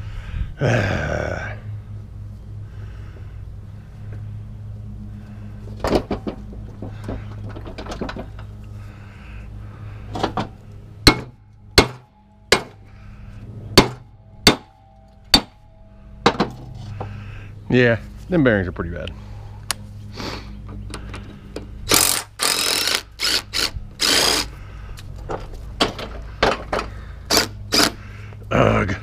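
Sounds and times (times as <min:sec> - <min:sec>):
steady low hum: 0:00.0 - 0:29.0
hammer striking metal: 0:11.0 - 0:12.8, 0:13.8 - 0:15.6.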